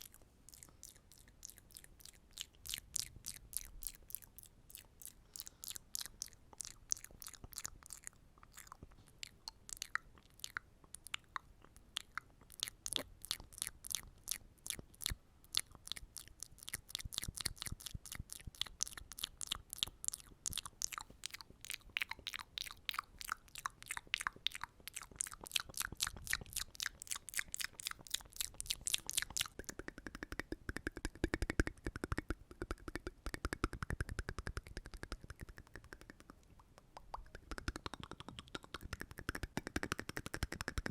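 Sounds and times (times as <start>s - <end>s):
wet mouth clicks and smacks: 0.0s - 40.9s.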